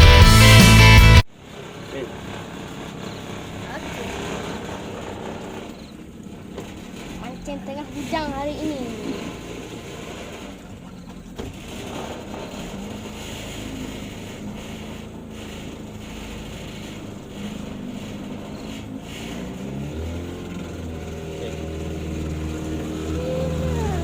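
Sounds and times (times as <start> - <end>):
deep hum: 0.0 - 1.2
engine running: 0.0 - 24.0.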